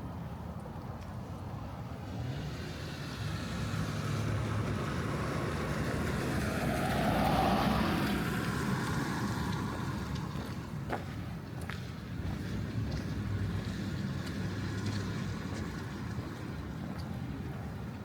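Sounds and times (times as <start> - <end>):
car tyres hissing on wet street: 2.0 - 10.8.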